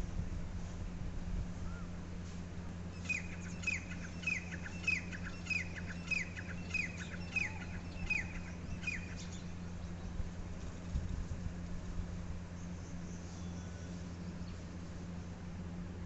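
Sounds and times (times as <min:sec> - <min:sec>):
bird calling downward-sliding note: 0:03.0 - 0:09.6.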